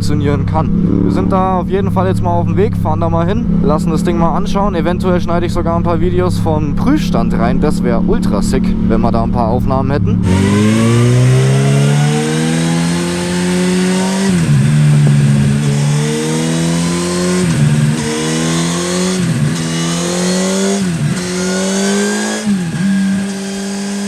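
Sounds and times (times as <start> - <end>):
motorcycle engine accelerating: 0.0 - 24.0
wind noise: 12.4 - 16.5.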